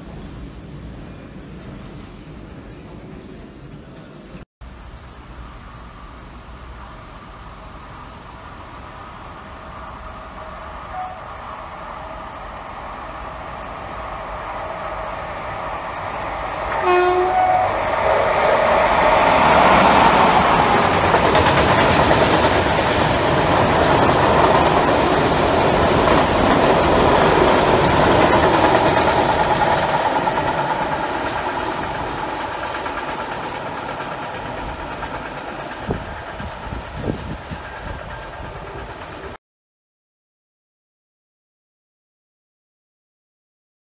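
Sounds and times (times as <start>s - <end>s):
train wagons rumbling on rails: 5.2s - 39.4s
train horn blast: 10.9s - 11.4s, 16.7s - 17.9s.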